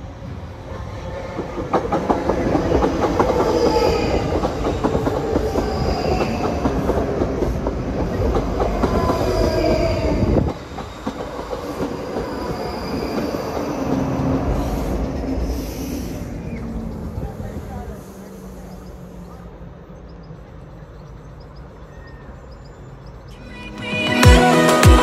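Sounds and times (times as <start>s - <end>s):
steady train rumble: 0.0s - 23.5s
train wheels clattering on rails: 0.7s - 17.8s
faint high wheel squeal: 12.0s - 14.0s, 14.6s - 23.5s.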